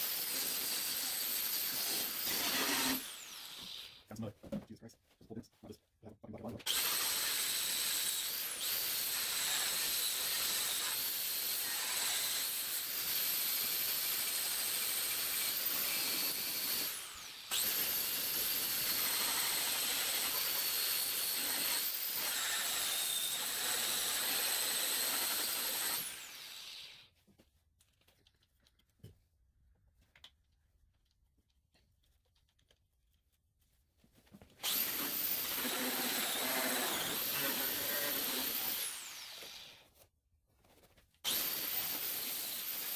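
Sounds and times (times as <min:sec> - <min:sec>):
stripping wheel power tool whining: 0:34.6 - 0:39.7.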